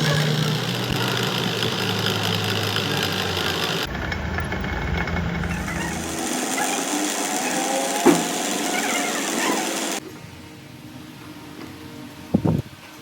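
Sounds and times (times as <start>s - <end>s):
machinery humming: 0.0s - 10.0s.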